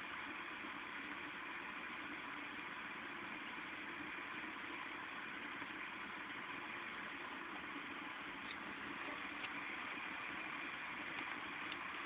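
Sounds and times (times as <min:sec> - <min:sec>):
faint low hum: 0:00.0 - 0:12.0
heavy rain hissing: 0:03.2 - 0:12.0.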